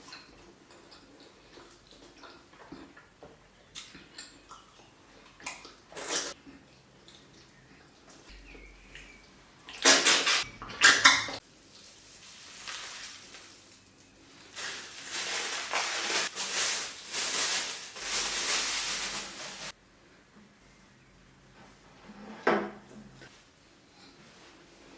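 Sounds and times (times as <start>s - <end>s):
dishes and cutlery clattering: 10.0s - 11.4s.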